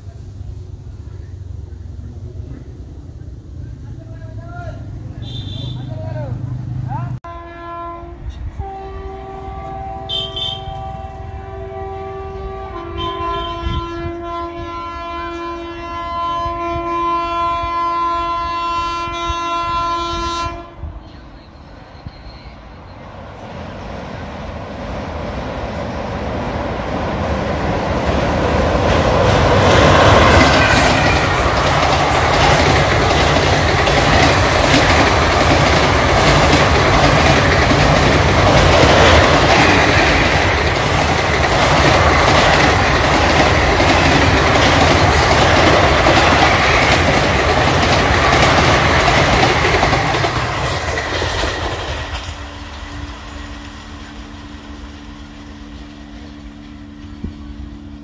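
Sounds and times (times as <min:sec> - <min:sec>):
train rumbling over bridge: 0:00.0 - 0:58.0
wheels clattering over rail joints: 0:27.6 - 0:52.9.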